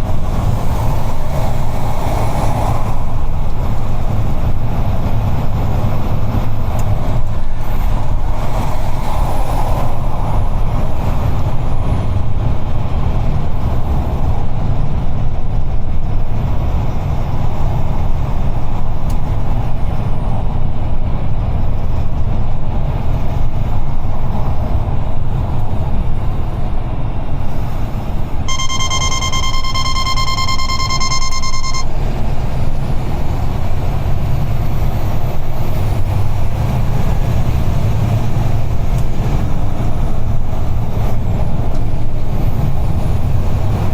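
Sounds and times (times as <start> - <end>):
truck engine and road rumble: 0.0 - 43.9
high electronic beep: 28.5 - 31.9.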